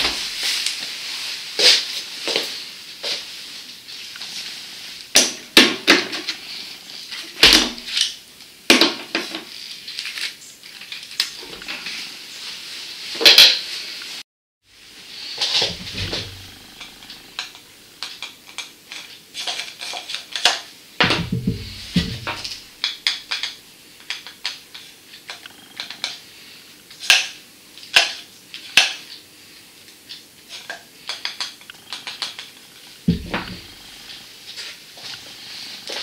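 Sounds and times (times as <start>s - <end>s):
dull thumps: 15.4s - 17.3s, 21.0s - 22.6s, 33.0s - 34.0s.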